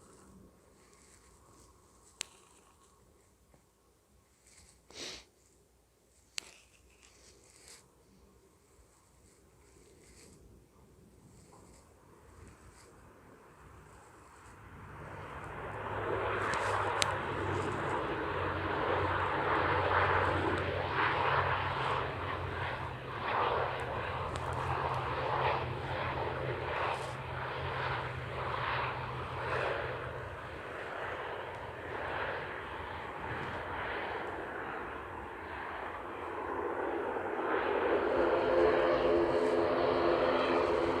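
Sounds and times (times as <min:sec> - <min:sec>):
airliner engines: 0:09.8 - 0:41.0.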